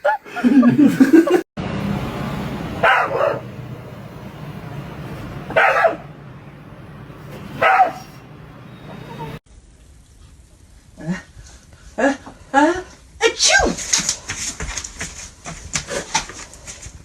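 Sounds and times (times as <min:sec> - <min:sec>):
steady background noise: 0:00.9 - 0:09.4
dog barking: 0:02.8 - 0:03.6, 0:05.5 - 0:06.1, 0:07.5 - 0:08.2.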